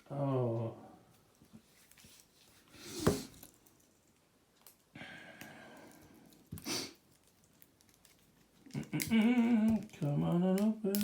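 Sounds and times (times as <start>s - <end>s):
person sighing: 5.0s - 6.0s, 8.8s - 9.9s.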